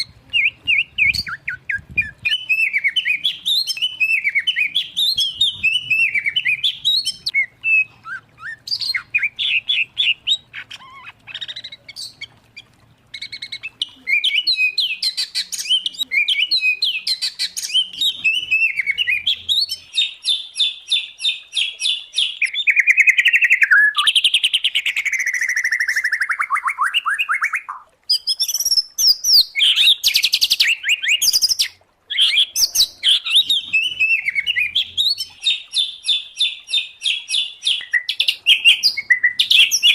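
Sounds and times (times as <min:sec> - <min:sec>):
songbird singing trills: 0:00.0 - 0:39.9.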